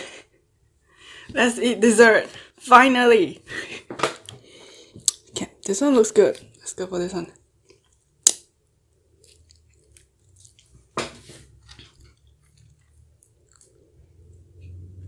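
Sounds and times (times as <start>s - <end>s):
person chewing: 4.2s - 6.7s, 7.5s - 14.8s
pastry crust crunching: 4.2s - 14.4s.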